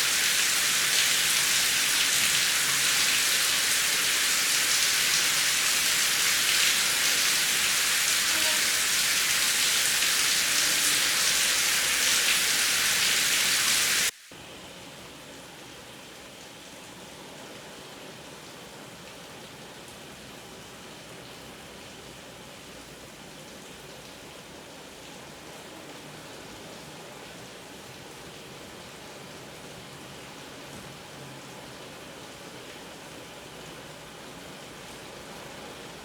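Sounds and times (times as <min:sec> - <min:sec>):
heavy rain hissing: 0:00.0 - 0:14.3
soft rain: 0:00.0 - 0:36.0.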